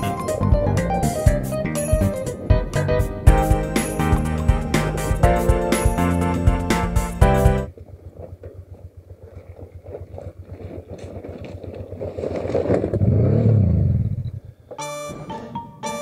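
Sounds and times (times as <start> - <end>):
music: 0.0 - 7.7, 14.8 - 16.0
stones clattering under tyres: 7.7 - 13.6.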